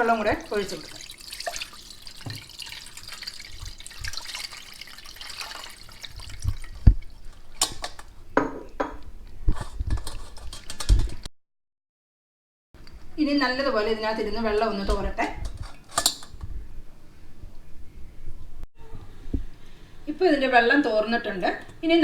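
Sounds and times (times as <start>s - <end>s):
water splashing into a strainer: 0.0s - 8.1s
water dripping: 0.0s - 9.1s.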